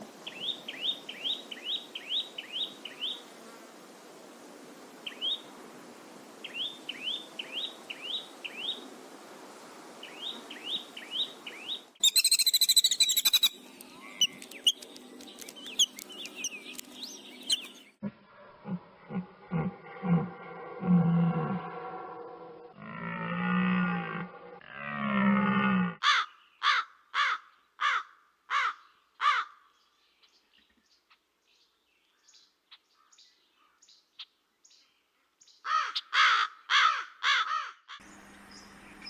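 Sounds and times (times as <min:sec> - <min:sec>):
small bird chirping: 0:10.1 - 0:18.0
harsh rattling bird call: 0:12.0 - 0:17.8, 0:35.6 - 0:38.2.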